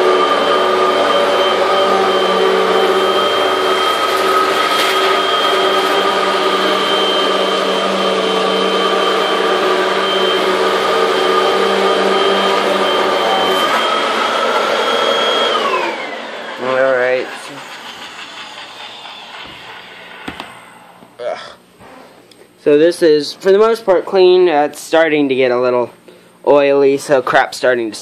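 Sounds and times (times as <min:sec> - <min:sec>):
vacuum cleaner motor whine: 0:00.0 - 0:21.2.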